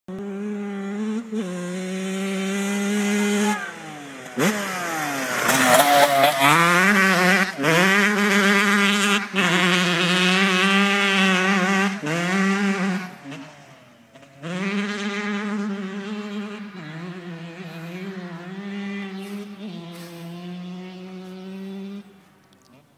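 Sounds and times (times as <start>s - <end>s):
two-stroke engine revving high: 0.1s - 22.3s.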